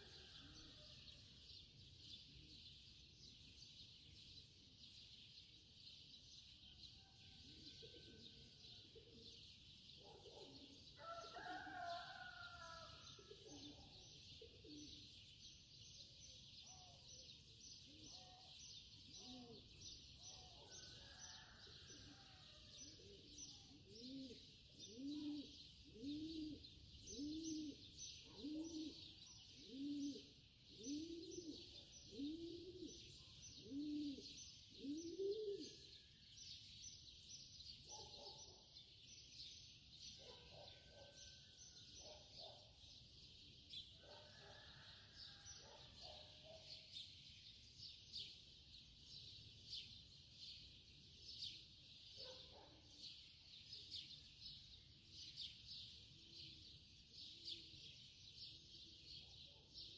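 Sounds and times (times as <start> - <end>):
low cooing call: 23.8 - 27.8, 28.4 - 35.8.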